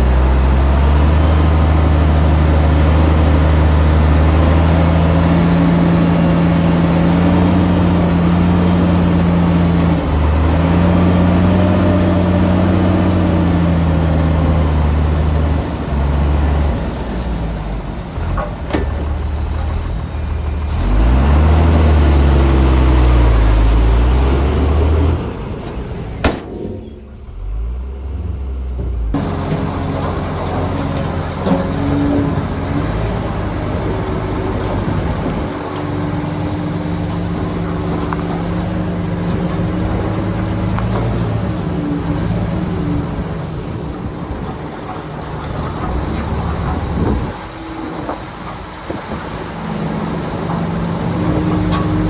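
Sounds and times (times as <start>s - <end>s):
heavy diesel engine under load: 0.0s - 52.0s
sharp knocks: 26.2s - 26.9s.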